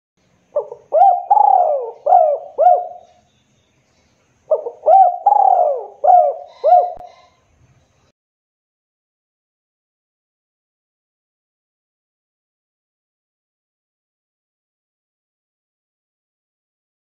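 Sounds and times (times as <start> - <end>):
dove cooing: 0.5 - 3.2, 4.5 - 7.3.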